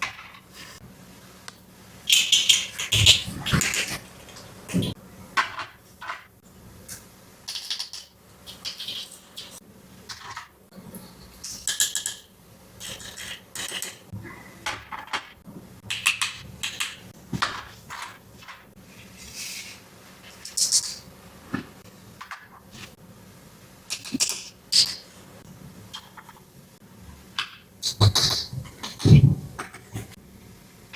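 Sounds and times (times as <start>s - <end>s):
plastic toy pieces clicking: 7.5s - 9.1s.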